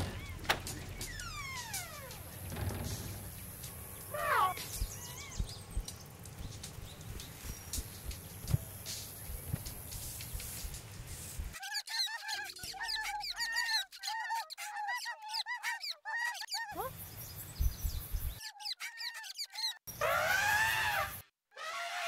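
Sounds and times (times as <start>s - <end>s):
hissy outdoor ambience: 0.0s - 11.6s
birds chirping: 0.0s - 19.8s.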